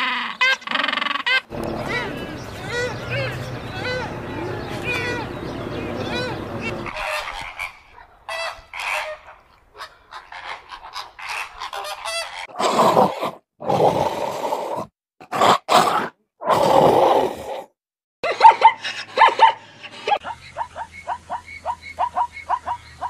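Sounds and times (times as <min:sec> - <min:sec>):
high animal calls: 0:00.0 - 0:09.2.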